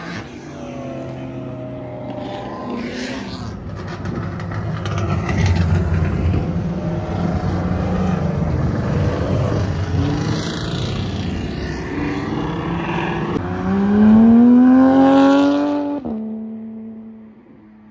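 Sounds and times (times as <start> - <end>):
car engines rumbling: 0.0 - 17.9
sports car accelerating hard: 6.4 - 17.2.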